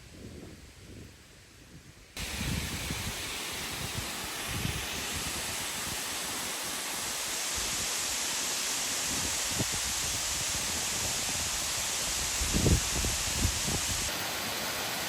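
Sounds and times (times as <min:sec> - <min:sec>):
wind buffeting microphone: 0:00.0 - 0:05.6, 0:09.1 - 0:14.1
small waterfall rushing: 0:02.2 - 0:15.0.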